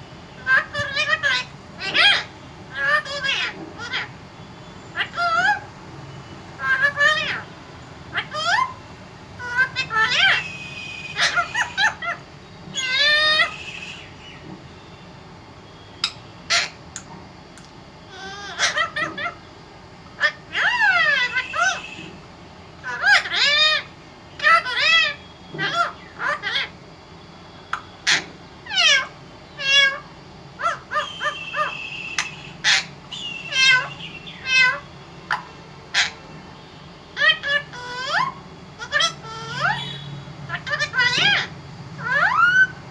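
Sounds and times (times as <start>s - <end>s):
parrot calling: 0.3s - 15.0s, 15.7s - 42.9s
parrot screeching: 0.4s - 4.2s, 4.9s - 5.7s, 6.6s - 7.5s, 8.1s - 8.8s, 9.4s - 14.4s, 16.0s - 16.8s, 18.1s - 19.5s, 20.1s - 22.2s, 22.8s - 26.8s, 27.7s - 36.3s, 37.2s - 42.8s.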